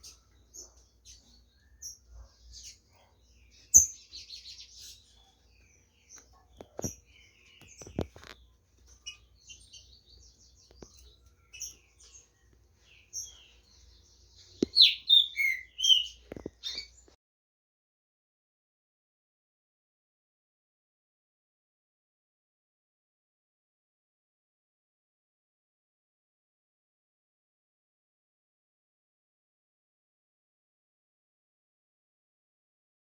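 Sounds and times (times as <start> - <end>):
birds chirping and calling: 0.0 - 17.2.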